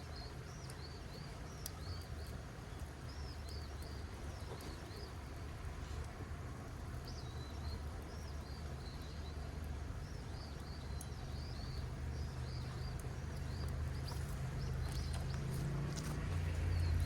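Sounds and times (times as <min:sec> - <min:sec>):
small birds chirping: 0:00.0 - 0:06.0, 0:06.9 - 0:17.0
low rumble: 0:12.2 - 0:17.0.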